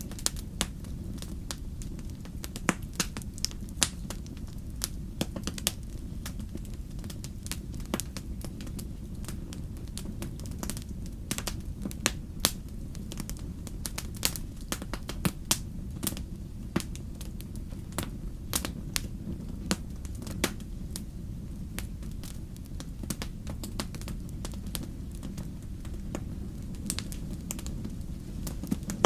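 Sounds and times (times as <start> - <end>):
campfire flames rumbling: 0.0 - 29.0
fire crackles and pops: 0.0 - 29.0.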